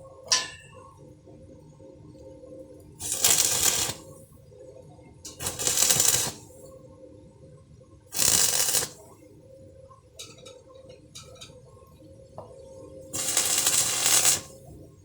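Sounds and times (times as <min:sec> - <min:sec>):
welding arc crackling: 0:03.0 - 0:04.2, 0:05.3 - 0:06.6, 0:08.1 - 0:09.2, 0:13.1 - 0:14.7.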